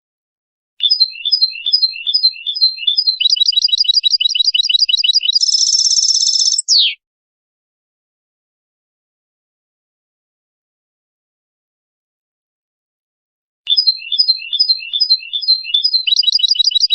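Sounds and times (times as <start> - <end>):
bird singing with trill: 0.8 - 7.0, 13.7 - 16.9.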